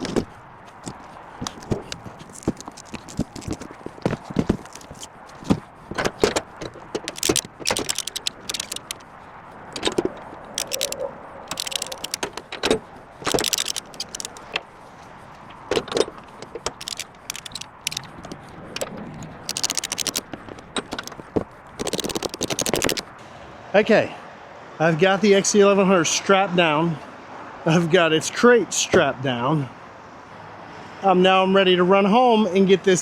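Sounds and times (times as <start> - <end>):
ratchet strap clicks: 0.0 - 9.1, 9.7 - 14.7, 15.5 - 23.2
metal hooks clanking: 6.0 - 9.0, 9.7 - 14.6, 15.7 - 18.1.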